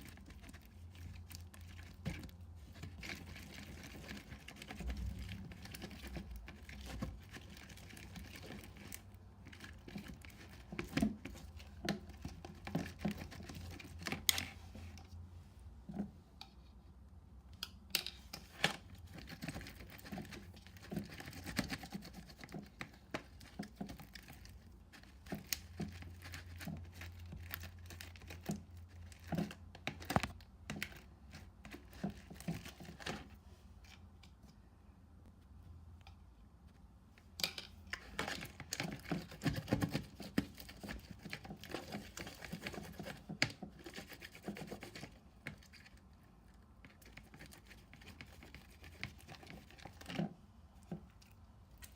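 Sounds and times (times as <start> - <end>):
hands tapping and clicking items: 0.0 - 15.0, 17.6 - 33.3, 37.2 - 45.9
crinkling: 0.0 - 15.2, 18.3 - 34.6, 36.7 - 51.9.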